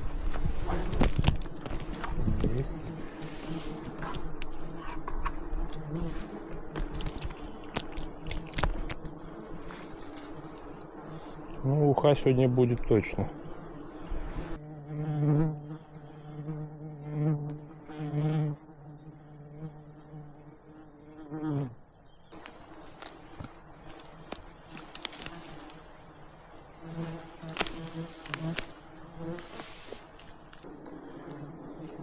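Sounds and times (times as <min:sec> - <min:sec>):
flying insect buzzing: 0:00.0 - 0:12.4, 0:13.0 - 0:32.0.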